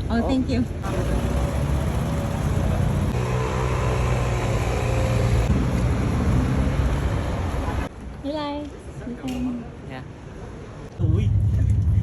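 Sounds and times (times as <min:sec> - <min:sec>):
train rumble with motor hum: 0:00.8 - 0:07.9.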